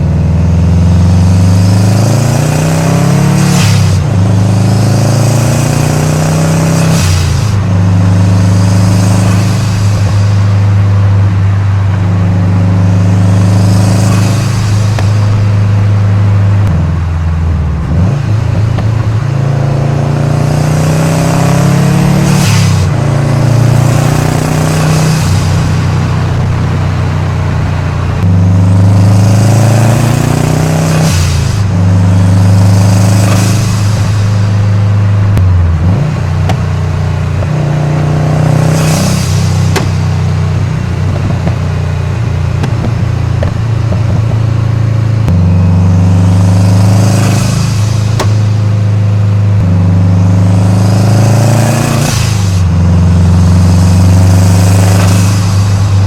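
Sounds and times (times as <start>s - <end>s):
car engine and exhaust under load: 0.0s - 56.0s
turbo hiss: 6.8s - 11.0s, 51.8s - 56.0s.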